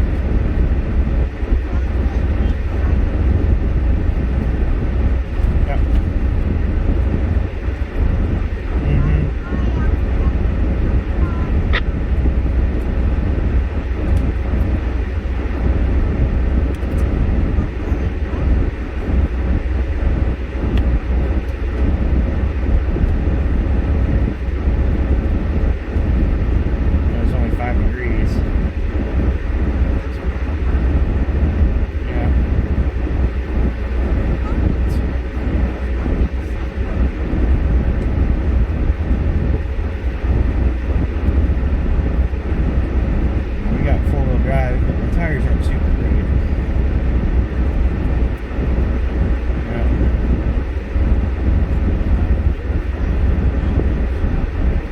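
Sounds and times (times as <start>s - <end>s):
vehicle road noise rumble: 0.0s - 54.9s.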